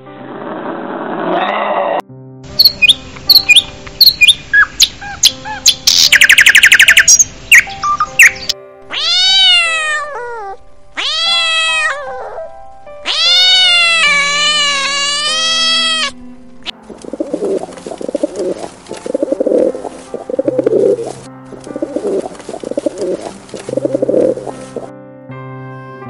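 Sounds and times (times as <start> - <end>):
sparrows chirping: 2.6 - 8.6, 16.9 - 24.8
cat meowing: 8.9 - 16.2.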